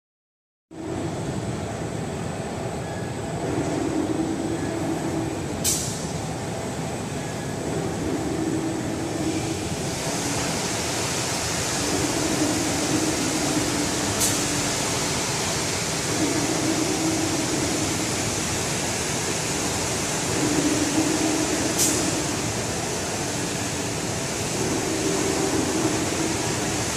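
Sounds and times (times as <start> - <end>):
water spray nozzles hissing: 9.2 - 26.9.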